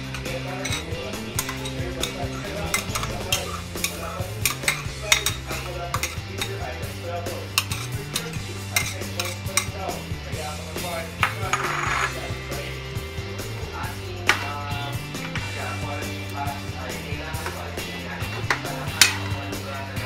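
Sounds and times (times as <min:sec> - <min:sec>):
metal spoon scraping glass bowl: 0:00.0 - 0:06.7, 0:07.5 - 0:09.8, 0:11.4 - 0:12.2
spoon clinking on metal wok: 0:00.1 - 0:06.6, 0:07.6 - 0:09.8.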